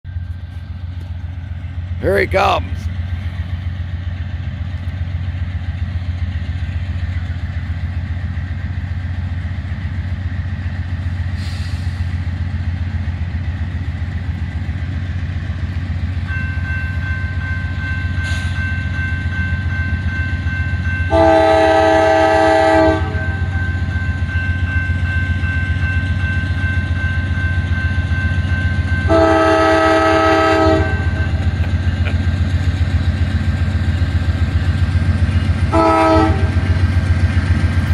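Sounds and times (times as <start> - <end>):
diesel locomotive rumble: 0.1 - 37.9
train air horn blasts: 21.1 - 23.5, 29.1 - 31.3, 35.7 - 36.6.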